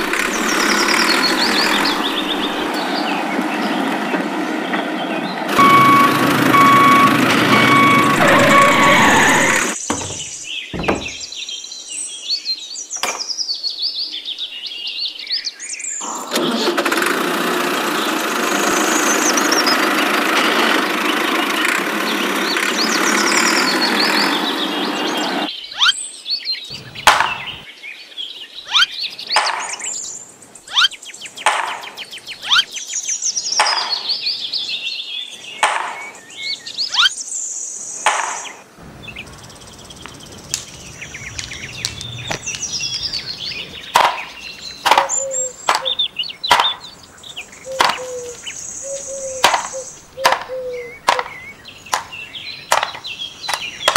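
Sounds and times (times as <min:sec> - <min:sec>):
motor-like noise: 0:00.0 - 0:03.7, 0:05.4 - 0:09.8, 0:16.0 - 0:25.5
birds chirping: 0:00.0 - 0:16.6, 0:17.6 - 0:53.9
sharp taps and knocks: 0:09.5 - 0:11.2, 0:27.0 - 0:27.6, 0:29.4 - 0:29.9, 0:31.4 - 0:32.1, 0:33.6 - 0:34.2, 0:35.6 - 0:36.2, 0:38.1 - 0:38.6, 0:43.9 - 0:46.9, 0:47.8 - 0:48.1, 0:49.4 - 0:53.9.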